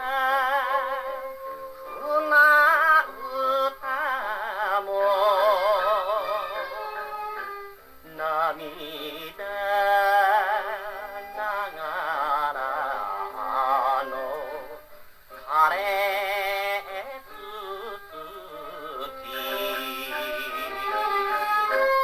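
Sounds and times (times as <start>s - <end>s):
popular song on gramophone record: 0.0s - 22.0s.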